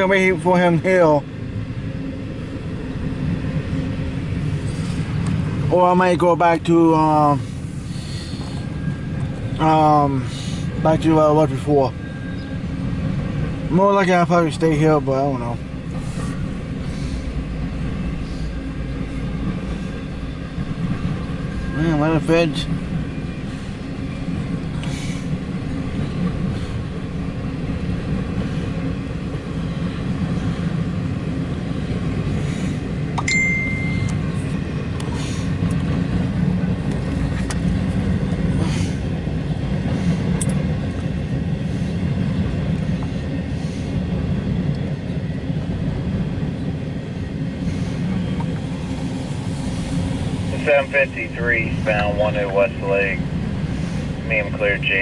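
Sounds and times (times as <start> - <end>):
vehicle rumble: 0.0 - 55.0
brief high tone: 33.2 - 34.2.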